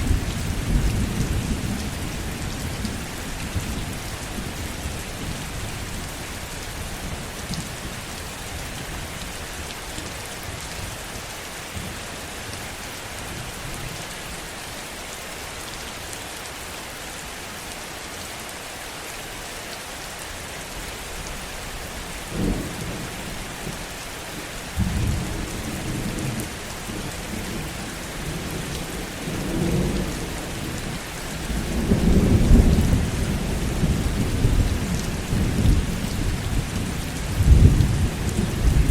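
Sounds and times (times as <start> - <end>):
heavy rain falling: 0.0 - 38.9
thunder rumbling: 24.8 - 27.6.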